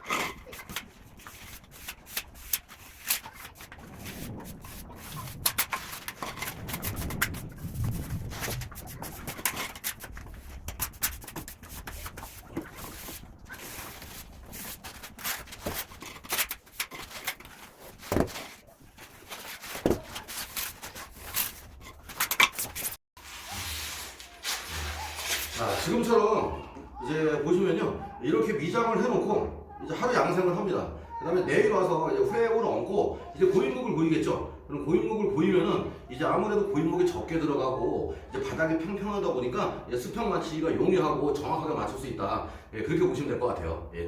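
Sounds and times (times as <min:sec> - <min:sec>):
trowel scraping wet mortar: 0:00.0 - 0:26.1.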